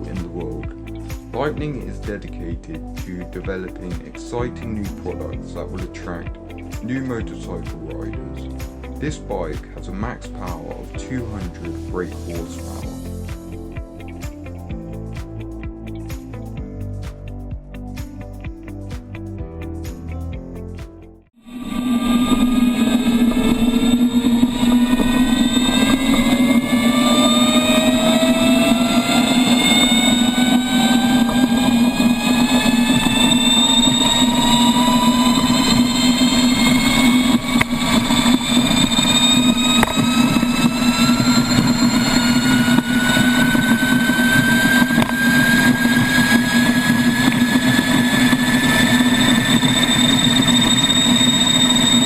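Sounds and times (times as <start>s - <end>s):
electric motorcycle whine rising: 21.4s - 52.0s
low running hum: 21.5s - 52.0s.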